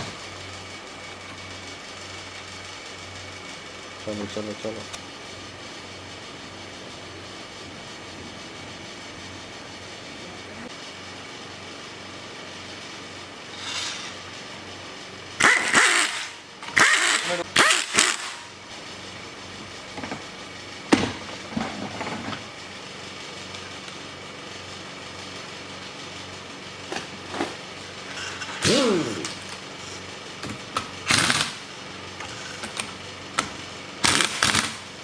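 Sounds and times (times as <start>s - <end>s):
workshop hum: 0.0s - 35.0s
short loud bursts of noise: 15.4s - 18.5s.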